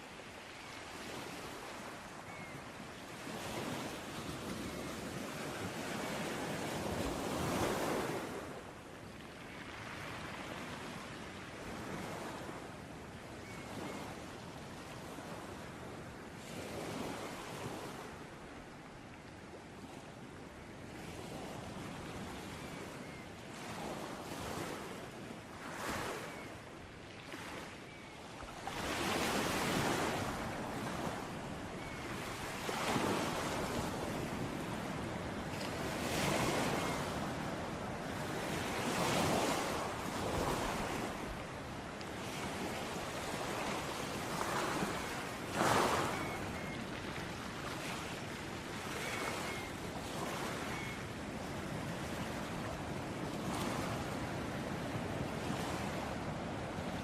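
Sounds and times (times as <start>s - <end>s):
sea waves breaking on shore: 20.9s - 57.0s.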